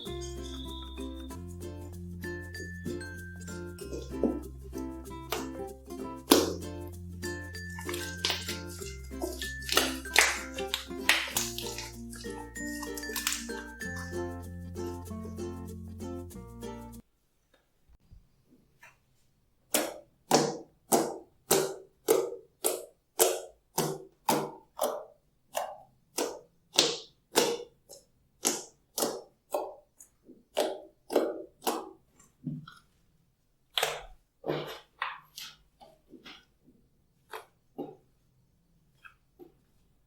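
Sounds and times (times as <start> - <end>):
slime squished by hand: 7.5 - 14.1, 19.7 - 32.0, 33.7 - 36.6.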